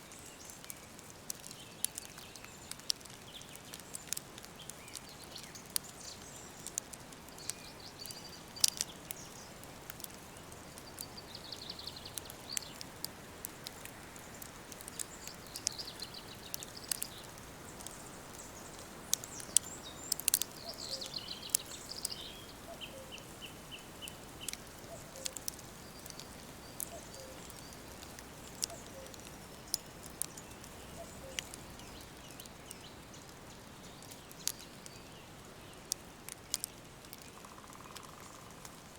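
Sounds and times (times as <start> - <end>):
soft steady hiss: 0.0 - 38.9
sharp clicks and crackles: 0.2 - 23.3, 24.0 - 35.0, 35.9 - 38.9
birds chirping and trilling: 14.3 - 35.1.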